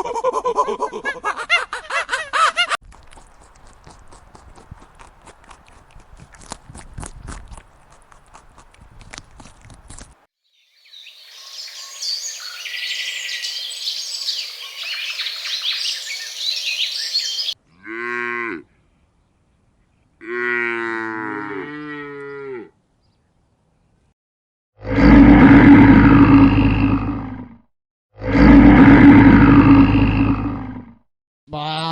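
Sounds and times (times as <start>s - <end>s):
high chirping: 10.6s - 17.6s
cattle mooing: 20.2s - 22.7s.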